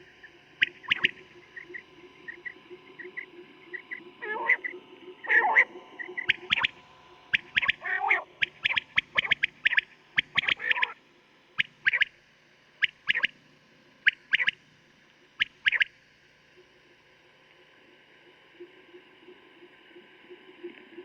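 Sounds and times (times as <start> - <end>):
quail calling: 0.6 - 11.0, 11.6 - 12.1, 12.8 - 13.3, 14.0 - 14.6, 15.4 - 15.9.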